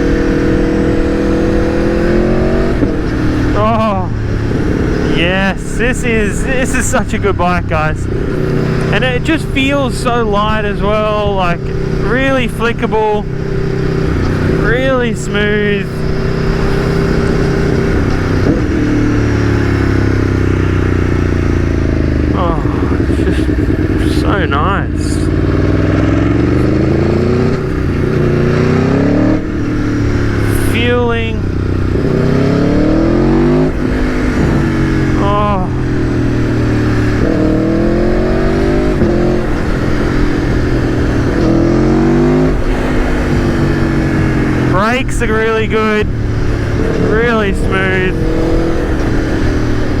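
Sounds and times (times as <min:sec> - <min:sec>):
wind noise: 0:00.0 - 0:07.4, 0:31.4 - 0:50.0
motorcycle engine running: 0:00.0 - 0:50.0.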